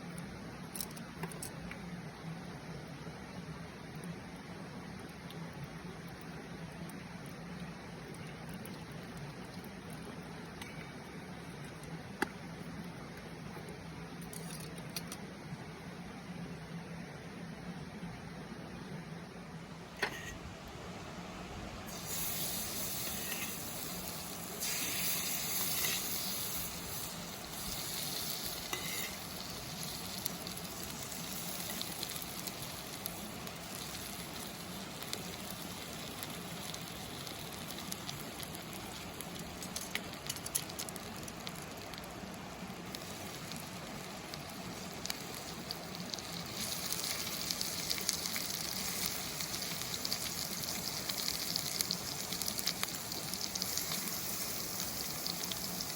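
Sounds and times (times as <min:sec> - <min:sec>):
food sizzling in oil: 0:21.9 - 0:55.9.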